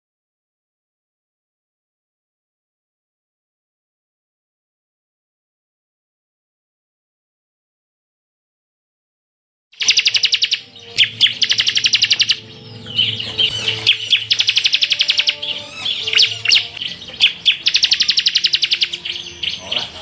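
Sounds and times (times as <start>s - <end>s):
bird chirps and twitters: 9.8s - 20.0s
bird singing fast trills: 9.8s - 20.0s.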